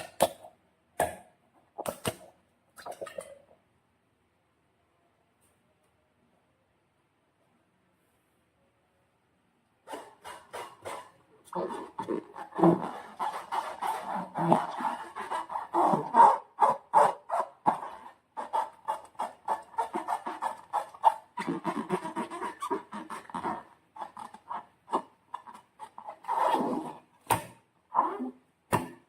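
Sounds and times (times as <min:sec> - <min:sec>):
slime squelching: 0:09.9 - 0:28.2.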